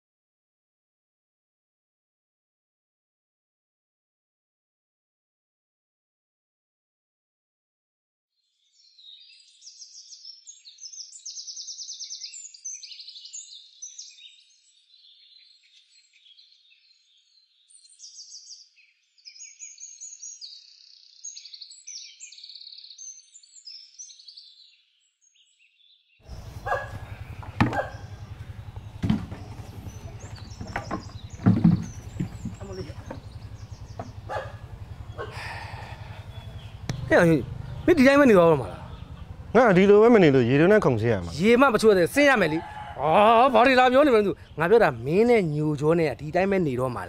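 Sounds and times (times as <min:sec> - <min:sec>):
small birds chirping: 0:08.4 - 0:47.0
sharp knocks and thumps: 0:26.3 - 0:35.3, 0:36.4 - 0:37.2
steady low hum: 0:26.3 - 0:40.1.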